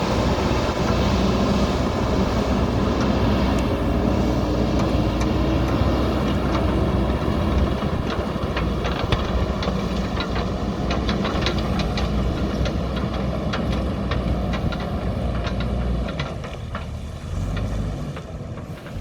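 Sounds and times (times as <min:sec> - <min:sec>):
diesel engine running: 0:00.0 - 0:19.0
sharp clicks and clanks: 0:04.8 - 0:19.0.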